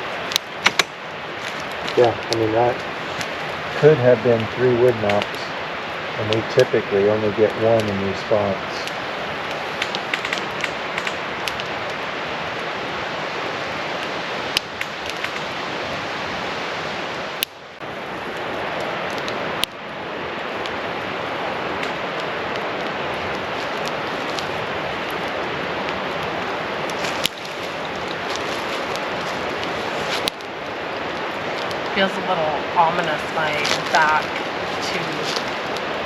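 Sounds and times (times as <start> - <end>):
steady rushing noise: 0.0 - 36.0
sharp pops: 0.3 - 5.4, 6.2 - 11.7.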